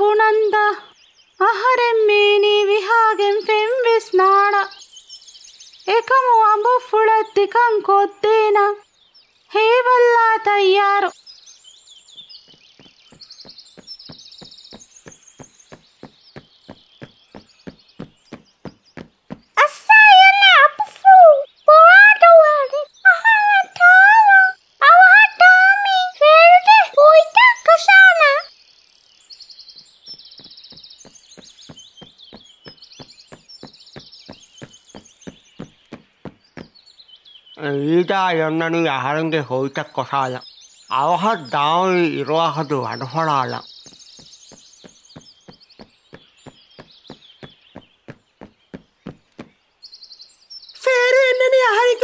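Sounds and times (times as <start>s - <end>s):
birds chirping and twittering: 0.0s - 52.0s
light footstep taps: 12.4s - 19.6s, 30.1s - 36.8s, 43.8s - 49.6s.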